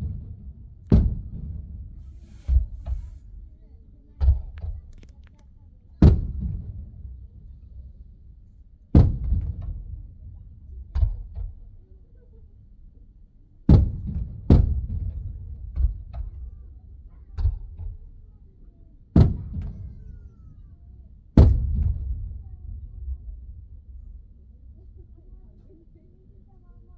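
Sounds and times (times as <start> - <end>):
muffled fireworks booming: 0.0 - 3.4, 6.0 - 7.2.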